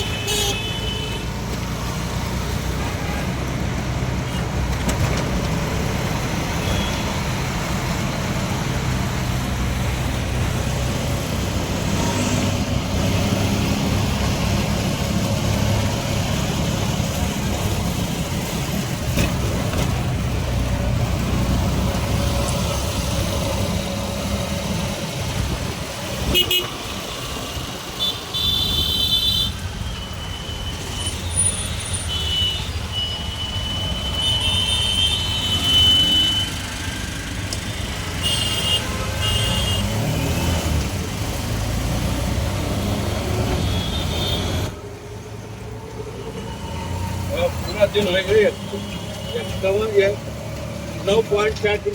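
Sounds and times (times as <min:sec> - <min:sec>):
vehicle horns honking: 0:00.0 - 0:01.3, 0:26.3 - 0:26.8, 0:28.0 - 0:29.7, 0:30.3 - 0:36.6, 0:38.1 - 0:40.0, 0:43.6 - 0:44.7, 0:48.0 - 0:50.0
road traffic engines: 0:00.0 - 0:51.9.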